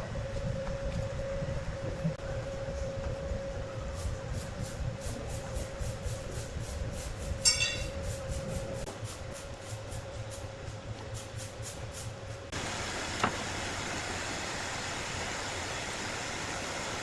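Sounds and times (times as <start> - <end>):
sawmill machinery running: 12.5 - 17.0.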